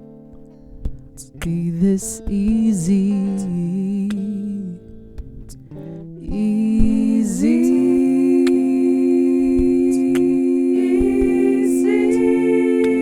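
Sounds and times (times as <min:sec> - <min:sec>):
soft acoustic guitar notes: 0:00.0 - 0:13.0
person singing long note: 0:07.4 - 0:13.0.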